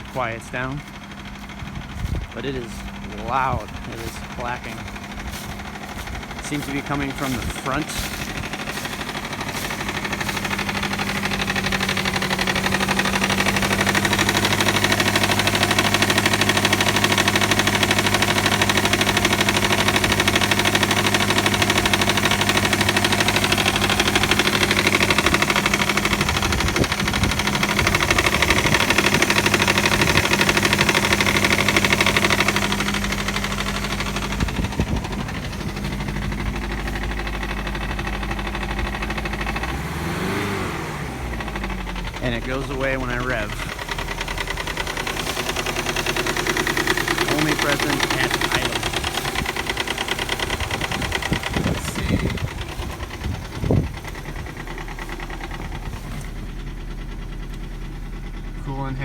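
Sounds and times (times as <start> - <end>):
car engine idling: 0.0 - 59.0
rapid engine clacking: 0.0 - 59.0.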